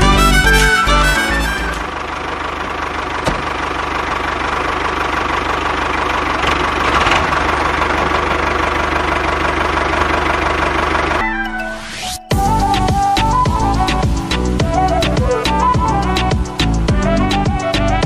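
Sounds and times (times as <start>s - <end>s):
small diesel engine knocking: 1.2s - 11.2s.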